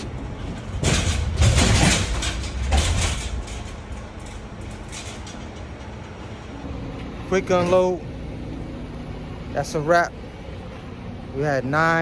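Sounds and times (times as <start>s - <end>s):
roll-up truck door rattling: 0.0s - 6.6s.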